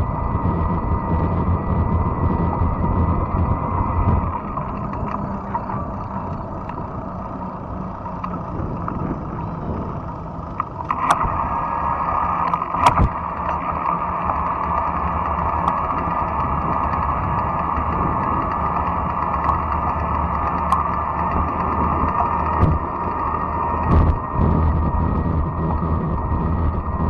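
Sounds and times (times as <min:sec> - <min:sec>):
bike tyres rumbling on trail: 0:00.0 - 0:27.0.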